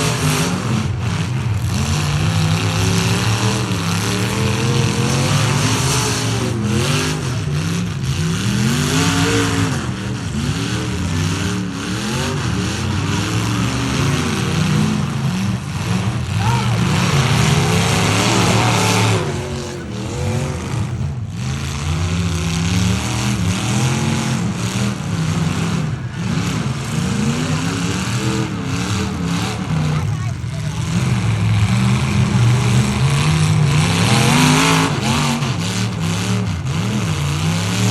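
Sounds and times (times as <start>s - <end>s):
truck engines revving hard: 0.0s - 37.9s
broad rushing noise: 14.2s - 22.1s.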